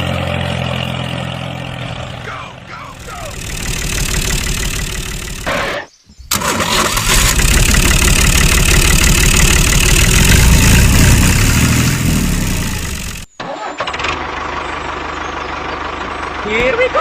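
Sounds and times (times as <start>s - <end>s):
engine running loudly: 0.0s - 13.3s.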